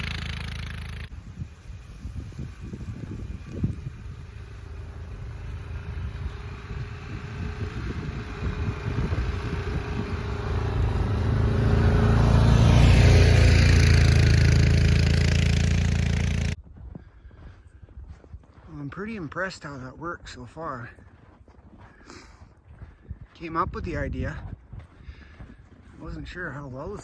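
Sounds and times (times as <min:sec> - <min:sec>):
small engine plowing snow: 0:00.0 - 0:16.6.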